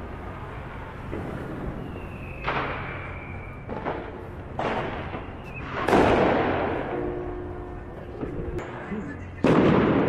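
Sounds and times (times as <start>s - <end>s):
thin firework whistle: 0.7s - 4.2s, 4.9s - 6.2s
fireworks bangs with echoes: 0.9s - 7.4s, 9.4s - 10.0s.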